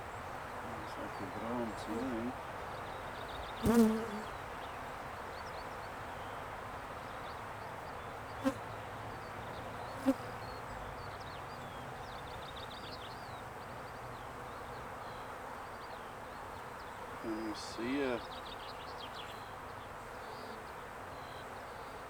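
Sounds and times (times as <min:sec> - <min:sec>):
honeybees buzzing: 0:00.0 - 0:04.4, 0:14.5 - 0:21.4.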